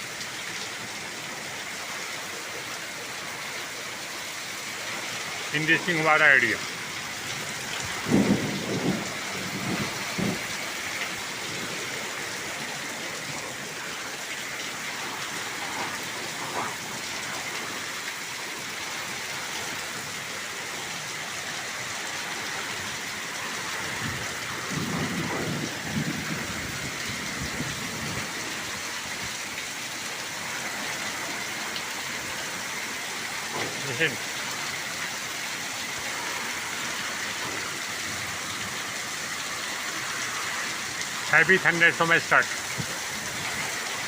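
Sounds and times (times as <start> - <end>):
heavy rain falling: 0.0 - 44.0
thunder rumble: 7.8 - 10.8, 23.9 - 28.4.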